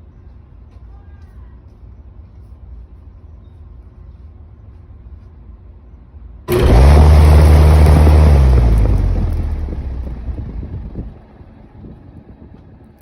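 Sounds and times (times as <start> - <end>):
condenser fan rush of air: 6.5 - 13.0.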